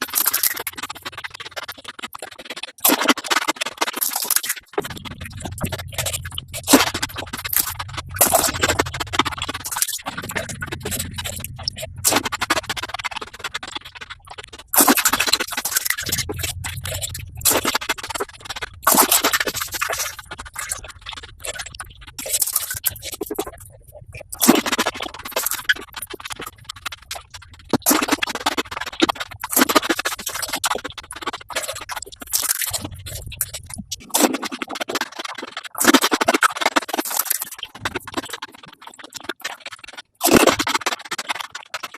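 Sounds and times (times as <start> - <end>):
fast scratchy crackle: 0.0 - 41.9
low hum: 4.7 - 34.0.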